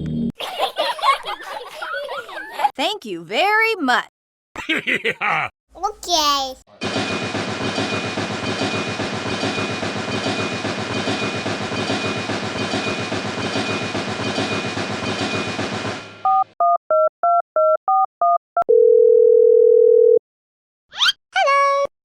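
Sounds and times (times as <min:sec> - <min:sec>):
dial tone: 0:16.6 - 0:20.2.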